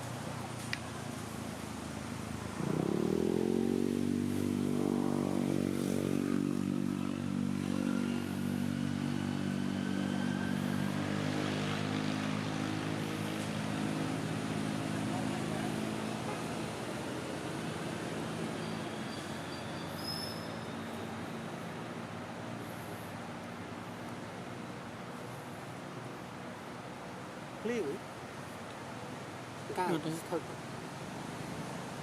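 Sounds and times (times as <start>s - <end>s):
motor engine revving: 2.6s - 6.4s.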